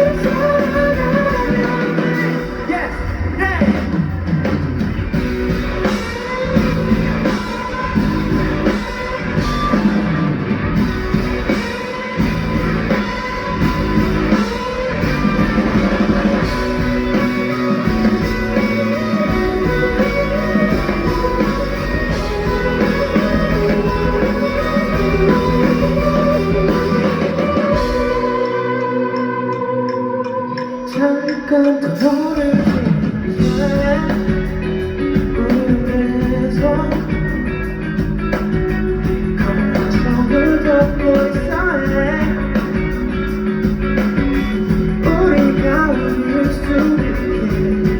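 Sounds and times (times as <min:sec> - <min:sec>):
bass guitar: 0:00.0 - 0:47.9
drums: 0:00.0 - 0:47.9
electric guitar playing: 0:00.0 - 0:47.9
sliding guitar notes: 0:05.0 - 0:31.7.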